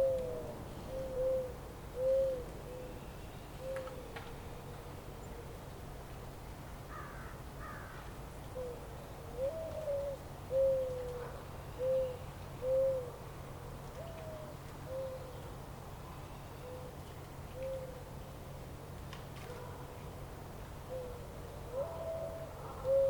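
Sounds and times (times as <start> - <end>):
bird low hooting calls: 0.0 - 5.5, 9.4 - 13.2, 20.9 - 23.0.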